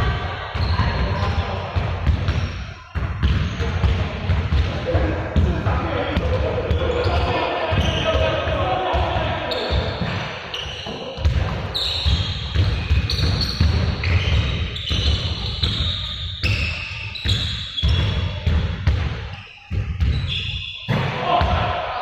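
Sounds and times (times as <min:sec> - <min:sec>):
balls bouncing on hard floor: 0:00.0 - 0:21.7
shoe squeaks: 0:00.6 - 0:01.5, 0:02.3 - 0:03.8, 0:09.4 - 0:18.4, 0:19.2 - 0:21.0.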